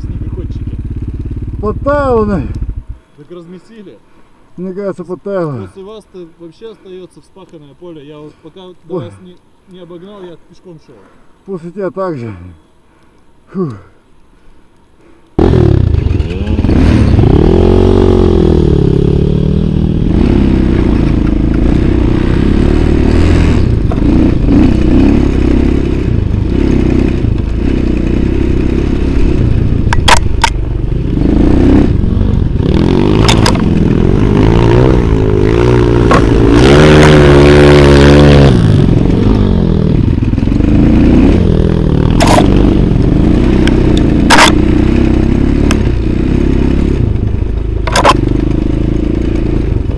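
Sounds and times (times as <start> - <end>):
off-road vehicle engine revving: 15.4 - 49.9.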